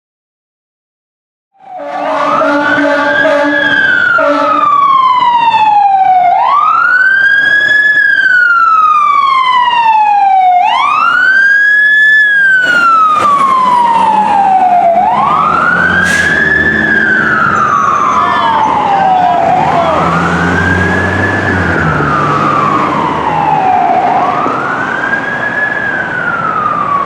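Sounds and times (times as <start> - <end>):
fire engine siren wailing: 1.6 - 27.0
air horn blast: 1.7 - 4.7, 15.9 - 16.8.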